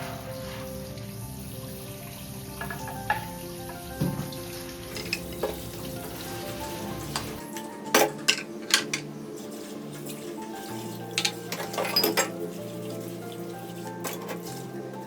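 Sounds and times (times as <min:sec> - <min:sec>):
food sizzling in a frying pan: 0:00.0 - 0:07.6
soft background music: 0:00.0 - 0:15.0
utensil clicking against pan: 0:04.9 - 0:05.7, 0:08.0 - 0:09.1.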